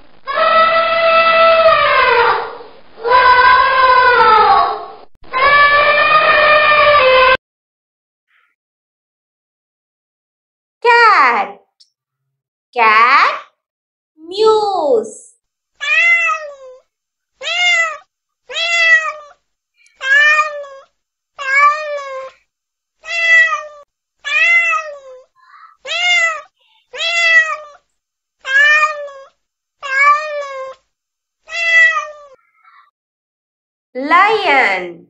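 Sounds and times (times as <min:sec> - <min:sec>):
cat meowing: 0:00.2 - 0:07.4, 0:15.8 - 0:16.8, 0:17.4 - 0:22.4, 0:23.0 - 0:27.8, 0:28.4 - 0:30.8, 0:31.5 - 0:32.9.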